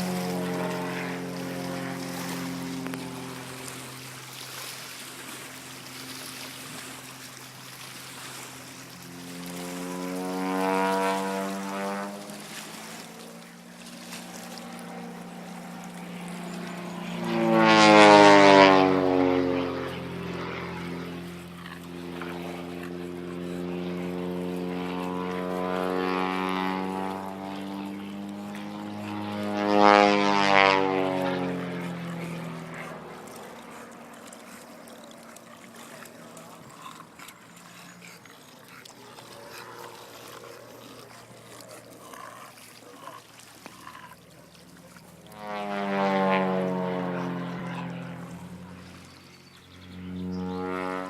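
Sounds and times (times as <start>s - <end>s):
propeller aircraft passing low: 0.0s - 51.0s.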